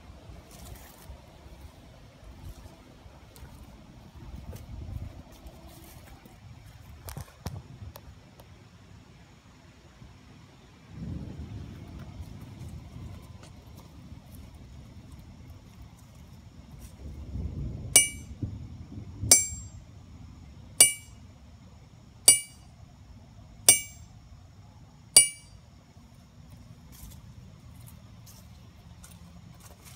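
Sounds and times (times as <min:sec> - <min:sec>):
anvil ringing when struck: 0:18.0 - 0:18.4, 0:19.3 - 0:19.8, 0:20.8 - 0:21.2, 0:22.3 - 0:22.7, 0:23.7 - 0:24.1, 0:25.2 - 0:25.6.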